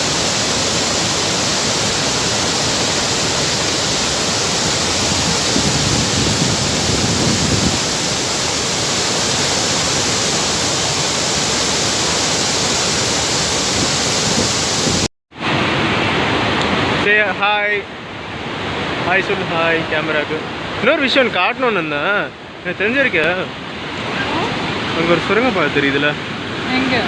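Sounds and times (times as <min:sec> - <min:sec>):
waterfall roaring: 0:00.0 - 0:27.0.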